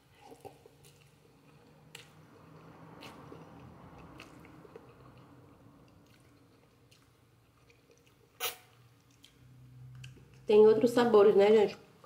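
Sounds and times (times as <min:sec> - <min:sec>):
person chewing noodles: 0:00.0 - 0:10.4.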